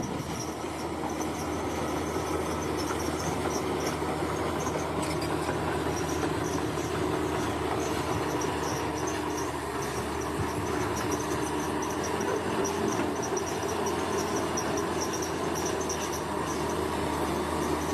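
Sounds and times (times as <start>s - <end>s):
bulldozer diesel engine running: 0.0s - 17.9s
insects chirping: 6.0s - 16.8s.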